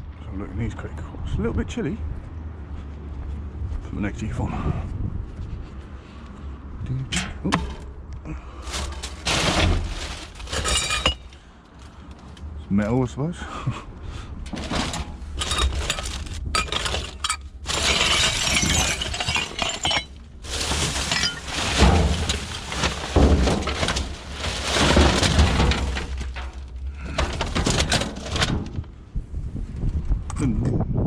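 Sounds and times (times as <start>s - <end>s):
wind rumbling on microphone: 3.4s - 7.2s, 26.8s - 31.0s
scrap metal rattling and clinking: 7.1s - 8.0s, 8.6s - 12.3s, 14.4s - 28.8s.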